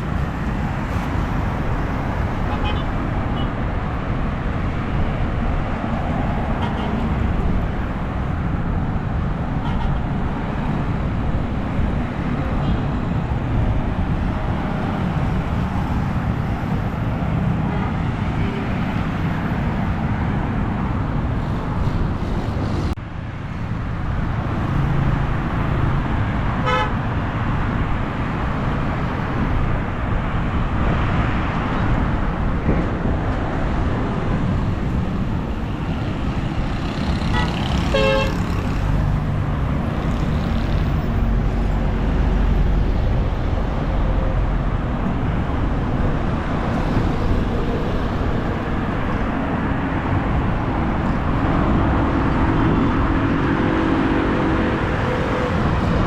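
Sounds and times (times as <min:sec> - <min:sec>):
road traffic: 0:00.0 - 0:56.0
car horn toots: 0:26.6 - 0:27.0, 0:37.3 - 0:38.4.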